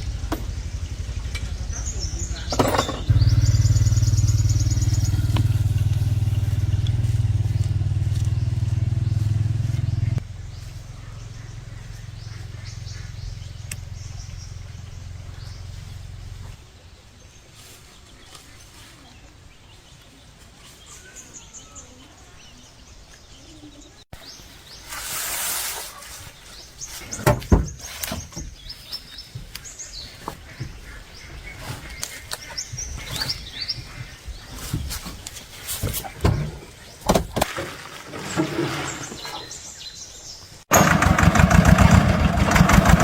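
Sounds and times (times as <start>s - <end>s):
low engine hum: 0.0s - 17.4s
small birds chirping: 0.0s - 37.4s, 38.8s - 40.7s.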